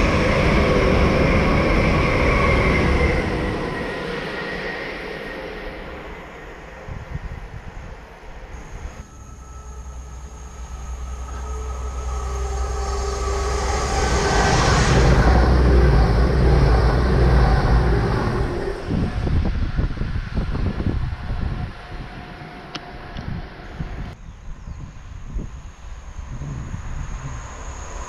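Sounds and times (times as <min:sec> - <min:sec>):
train passing at speed: 0:00.0 - 0:24.2, 0:24.8 - 0:28.0
rough buffeting: 0:09.0 - 0:24.2.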